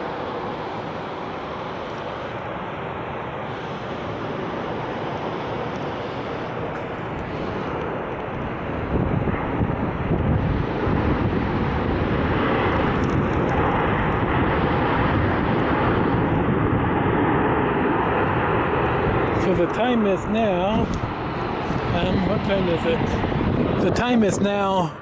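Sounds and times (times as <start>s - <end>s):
jet engines rushing: 0.0s - 25.0s.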